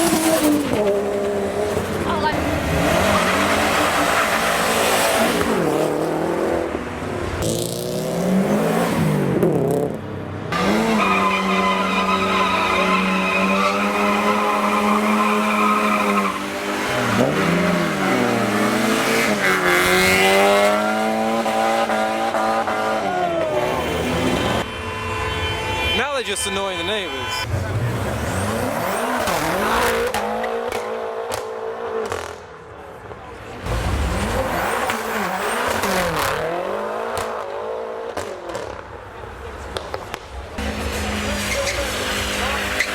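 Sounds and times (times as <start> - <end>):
car engine revving hard: 7.4 - 24.2, 27.5 - 32.3
tyres squealing: 10.6 - 17.2, 40.9 - 42.9.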